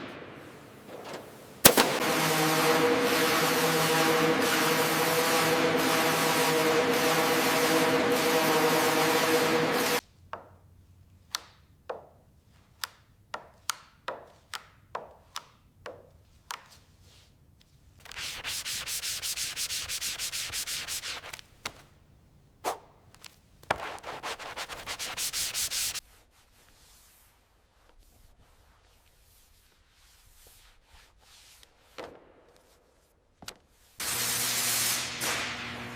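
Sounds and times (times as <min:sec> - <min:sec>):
hand sanding strokes: 0:00.9 - 0:10.0, 0:18.1 - 0:21.4, 0:23.7 - 0:27.2
loud droning tone: 0:02.0 - 0:10.0.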